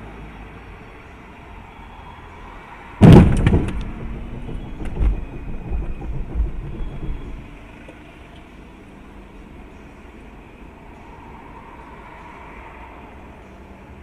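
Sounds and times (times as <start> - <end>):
road noise: 0.0 - 14.0
car crash: 3.0 - 7.8
rattling and thumps: 3.0 - 7.8.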